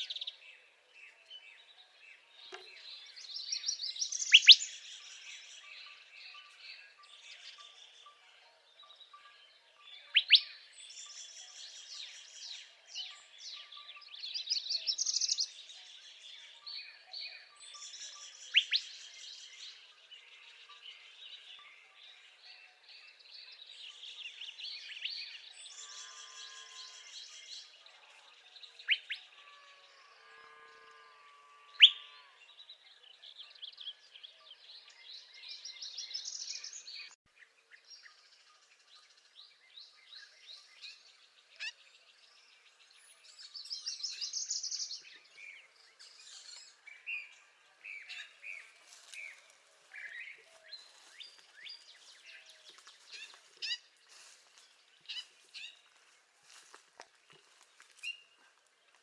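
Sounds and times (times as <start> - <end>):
other birds calling and chipping: 2.4 - 8.2, 10.0 - 16.2.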